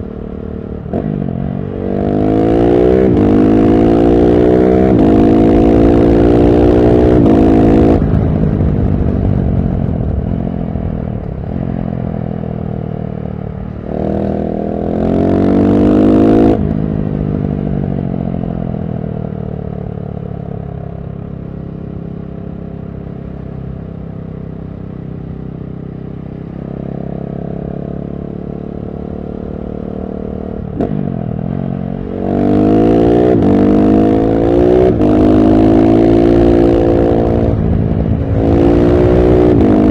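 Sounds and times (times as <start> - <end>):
motorcycle engine revving: 0.0 - 10.5, 13.6 - 19.9, 24.9 - 39.9.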